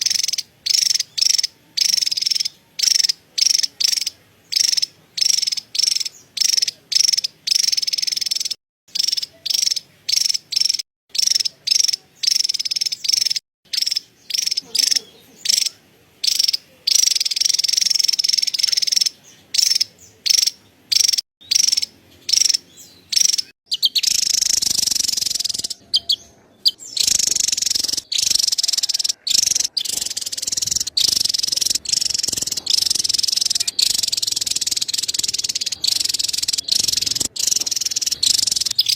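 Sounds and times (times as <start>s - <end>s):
bird chattering calls: 0.0s - 38.9s.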